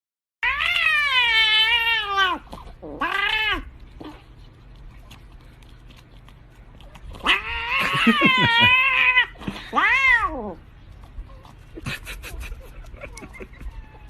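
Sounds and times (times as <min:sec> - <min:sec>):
cat meowing: 0:07.2 - 0:10.6.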